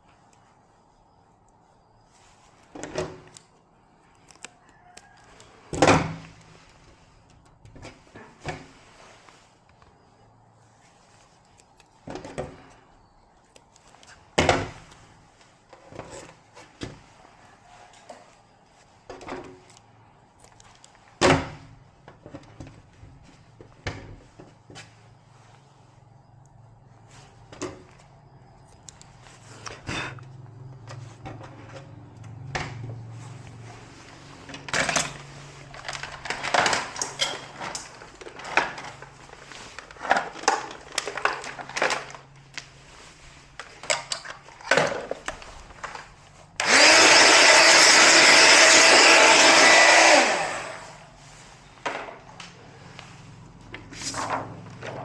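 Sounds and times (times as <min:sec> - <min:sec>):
clattering handling sounds: 0:30.8 - 0:46.6
objects knocking and clattering: 0:34.4 - 0:39.2, 0:43.6 - 0:46.1.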